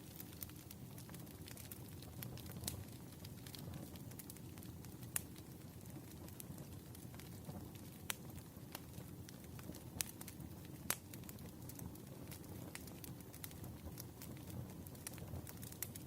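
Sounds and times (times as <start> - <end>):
fire crackling and popping: 0.0 - 16.0.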